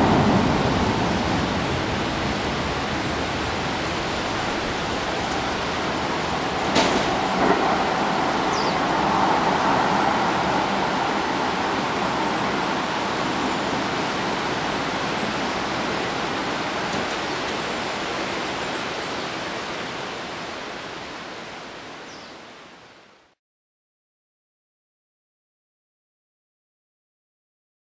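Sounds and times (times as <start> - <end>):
electric train rumble: 0.0 - 18.1.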